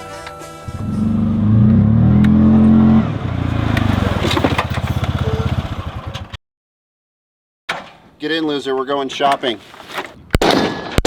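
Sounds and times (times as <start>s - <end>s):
vehicle engine revving: 0.7s - 6.4s.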